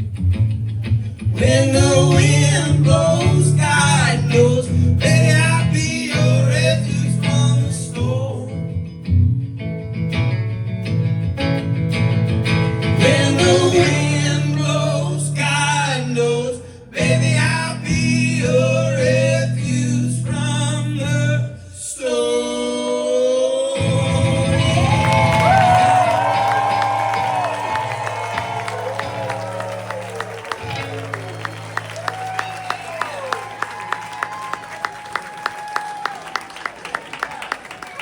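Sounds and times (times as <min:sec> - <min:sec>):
person singing: 0:13.0 - 0:25.9
live band playing: 0:23.8 - 0:35.7.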